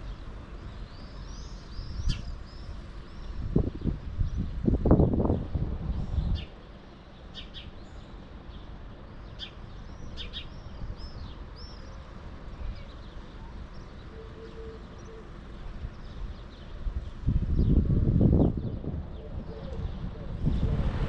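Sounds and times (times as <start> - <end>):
small birds chirping: 0.0 - 5.5, 6.2 - 20.1
low outdoor rumble: 0.0 - 21.0
wind buffeting microphone: 3.2 - 6.7, 15.8 - 21.0.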